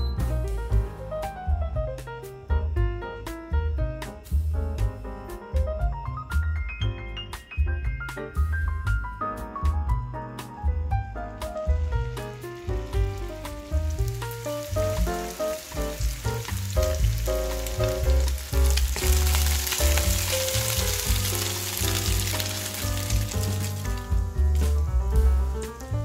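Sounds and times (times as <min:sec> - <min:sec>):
background music: 0:00.0 - 0:26.0
meatballs sizzling in hot oil: 0:11.4 - 0:26.0.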